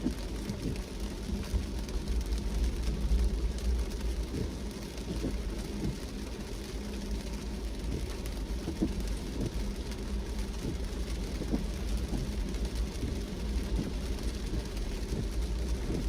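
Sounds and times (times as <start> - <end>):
car road and engine rumble: 0.0 - 16.0
faint ticks: 0.0 - 16.0
rain falling: 0.0 - 16.0.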